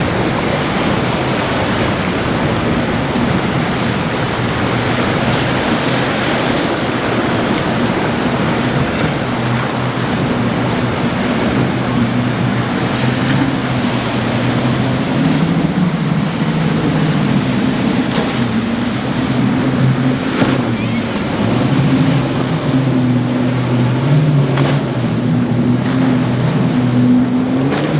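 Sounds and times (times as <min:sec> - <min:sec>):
wind noise: 0:00.0 - 0:24.1
motorboat engines droning: 0:00.0 - 0:27.9
waves washing: 0:00.0 - 0:27.9.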